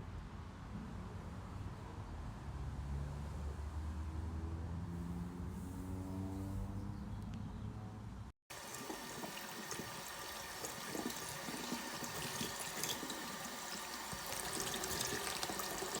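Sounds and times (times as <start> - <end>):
small drips: 8.5 - 16.0
water running and splashing: 8.5 - 16.0.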